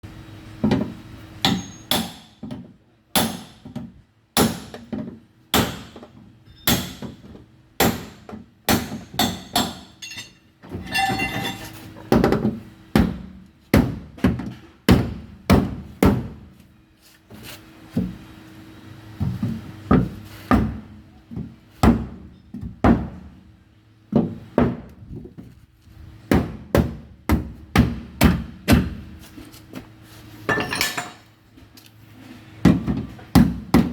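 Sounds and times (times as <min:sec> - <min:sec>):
metallic ringing: 0:10.0 - 0:11.7.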